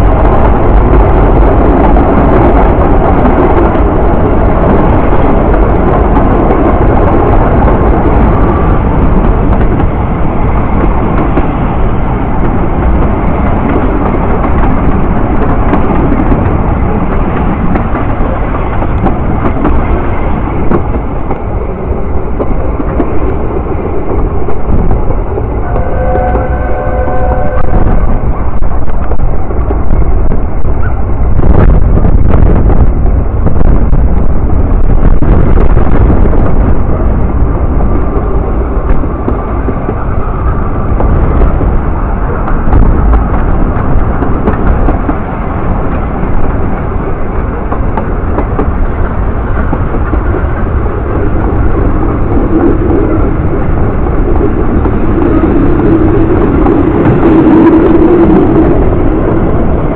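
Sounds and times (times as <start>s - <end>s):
train wheels rumbling on track: 0.0s - 59.9s.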